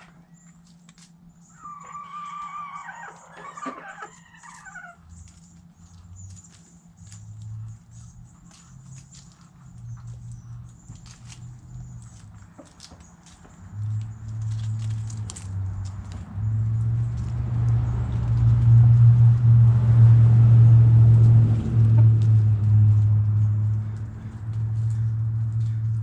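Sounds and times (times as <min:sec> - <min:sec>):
chickens pecking: 0:00.0 - 0:01.3, 0:02.3 - 0:19.8, 0:20.5 - 0:26.0
chickens chirping: 0:00.0 - 0:17.3
loud low rumble: 0:13.6 - 0:26.0.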